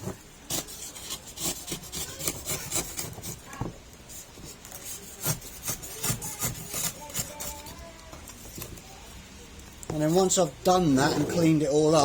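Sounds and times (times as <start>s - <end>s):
knife scraping carbon fibre edge: 0.5s - 3.4s, 4.7s - 7.7s.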